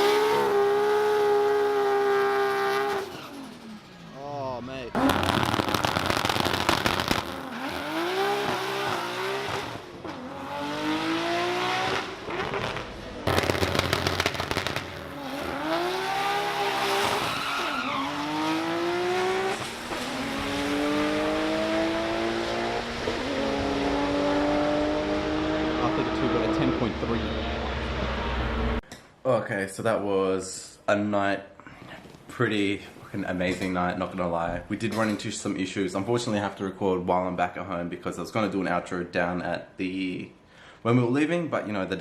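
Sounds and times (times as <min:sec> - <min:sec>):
race car engine accelerating: 0:04.9 - 0:13.8, 0:15.0 - 0:28.8
crackle of bangs at launch: 0:05.0 - 0:07.4, 0:12.6 - 0:15.0.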